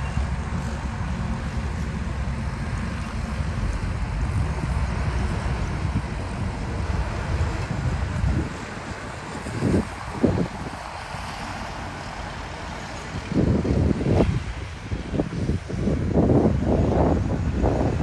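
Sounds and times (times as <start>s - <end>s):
diesel machinery engine rumbling: 0.0s - 18.0s.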